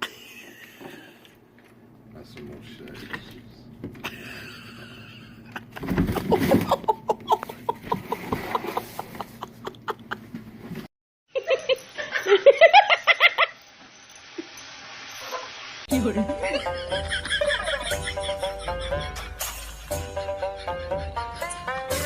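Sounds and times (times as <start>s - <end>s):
person laughing in bursts: 0.0s - 1.2s, 4.0s - 10.4s, 11.3s - 13.6s, 16.4s - 22.0s.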